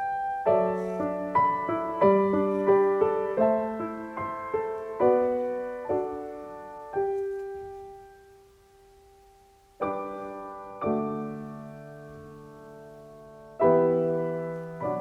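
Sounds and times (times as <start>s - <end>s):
soft solo piano music: 0.0s - 15.0s.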